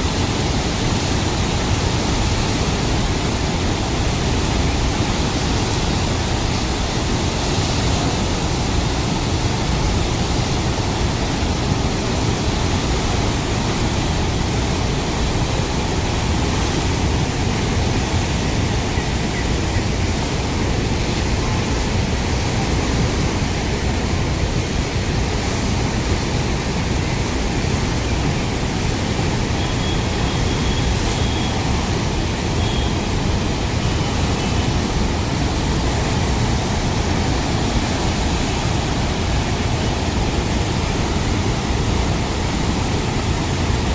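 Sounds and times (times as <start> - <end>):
water rushing through dam spillway: 0.0 - 43.9.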